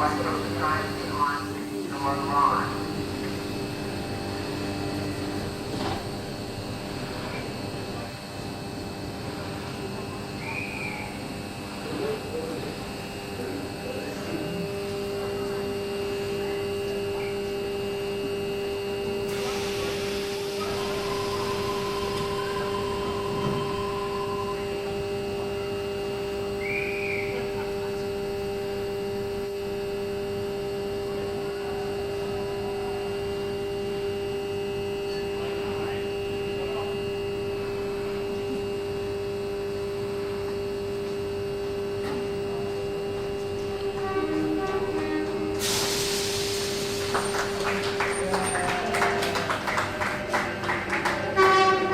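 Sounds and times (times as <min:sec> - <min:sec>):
electric train humming: 0:00.0 - 0:51.9.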